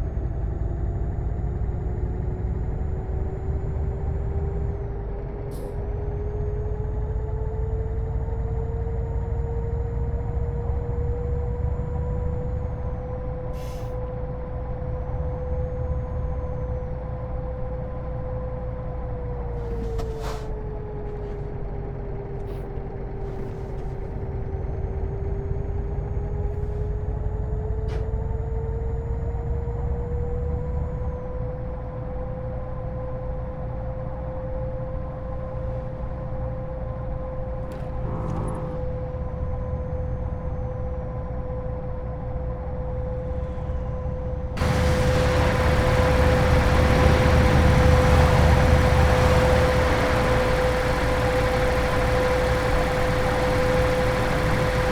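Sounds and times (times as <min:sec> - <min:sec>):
truck engine rumble and whine: 0:00.0 - 0:54.9
road and wind noise: 0:43.3 - 0:54.9.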